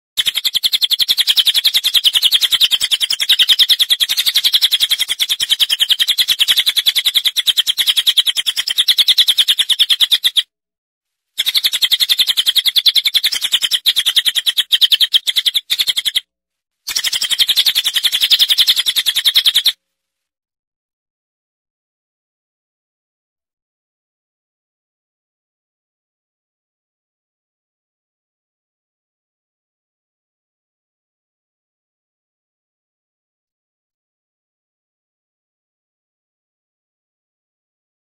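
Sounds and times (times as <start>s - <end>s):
bird chirping very fast: 0.2s - 10.5s, 11.4s - 16.3s, 16.9s - 19.8s.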